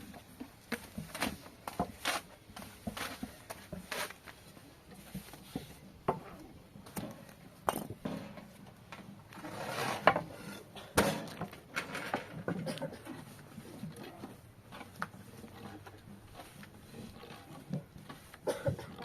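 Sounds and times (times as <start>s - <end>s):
objects knocking and clattering: 5.5s - 9.2s, 10.0s - 13.3s.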